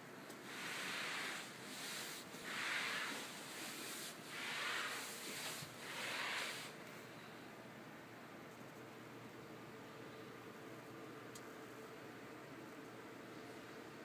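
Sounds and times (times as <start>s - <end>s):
gas fireplace hissing: 0.0s - 7.0s.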